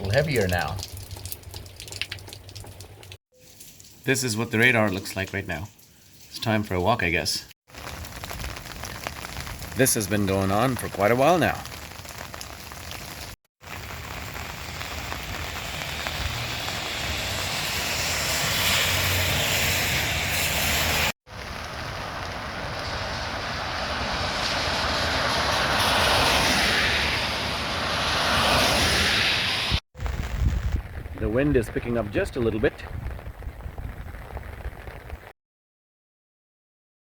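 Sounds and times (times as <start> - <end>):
rain falling: 0.0 - 35.3
wind buffeting microphone: 30.0 - 35.3.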